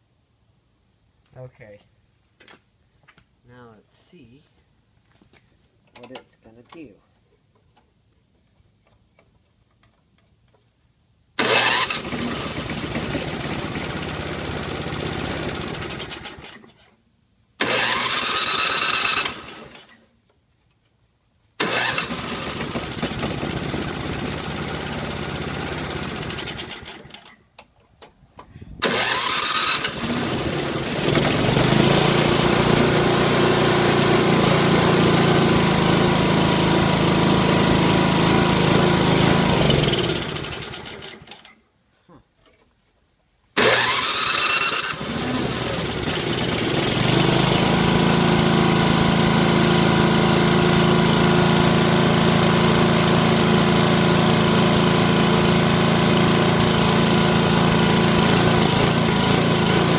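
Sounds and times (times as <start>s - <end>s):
small engine starting and running: 11.4s - 16.9s, 17.6s - 20.1s, 21.6s - 27.4s, 28.8s - 41.6s, 43.6s - 59.9s.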